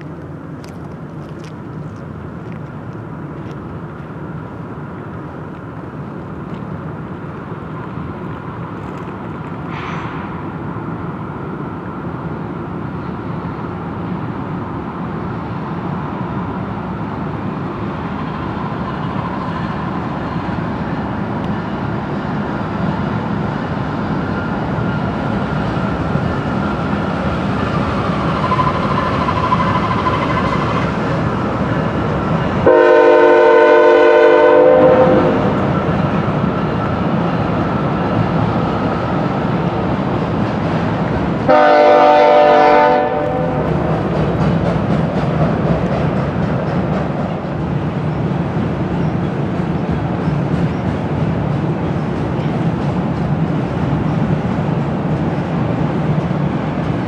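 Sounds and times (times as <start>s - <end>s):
train rumble: 0.0s - 57.0s
locomotive air horn blast: 32.6s - 35.6s, 41.5s - 43.7s.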